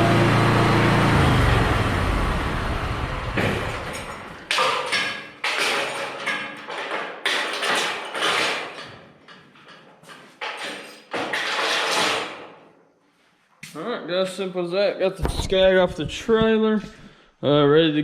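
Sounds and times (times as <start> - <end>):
mower engine running: 0.0 - 4.3
sudden noises: 15.2 - 17.1.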